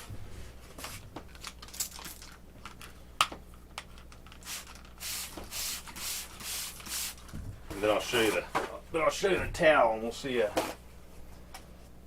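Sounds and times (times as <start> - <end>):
handling clicks and crinkles: 0.8 - 5.0.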